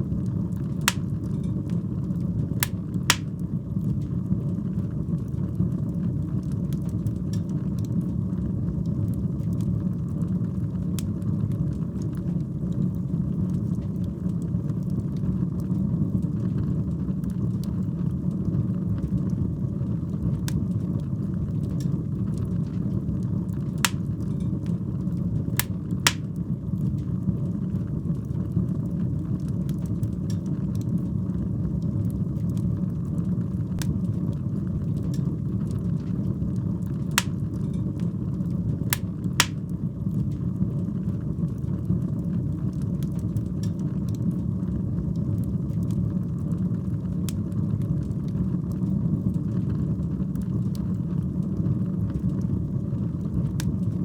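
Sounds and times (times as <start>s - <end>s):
fire rumbling: 0.0s - 15.6s, 19.6s - 28.2s, 30.6s - 43.6s
fire crackling and popping: 0.1s - 4.2s, 21.7s - 27.2s, 37.1s - 40.4s.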